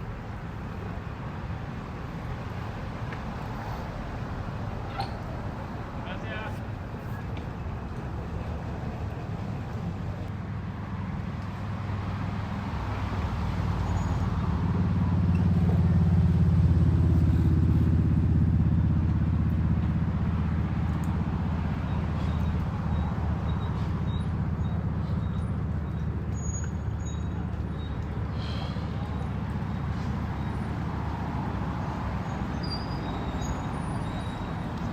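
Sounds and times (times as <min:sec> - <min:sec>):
low engine rumble: 0:00.0 - 0:34.9.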